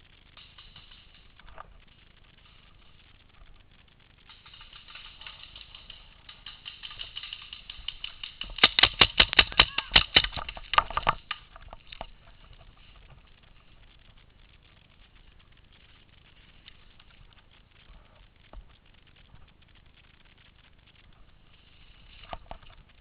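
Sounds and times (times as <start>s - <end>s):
paintball markers firing: 4.3s - 11.4s.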